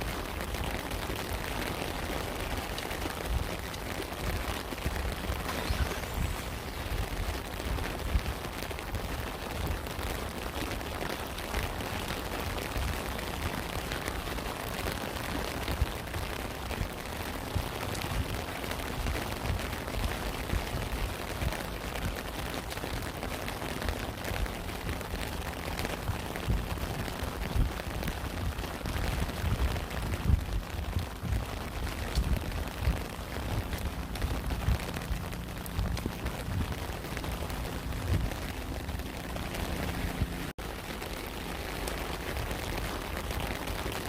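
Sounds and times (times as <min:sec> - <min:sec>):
steady rain: 0:00.0 - 0:44.0
dull low thumps: 0:23.8 - 0:40.5.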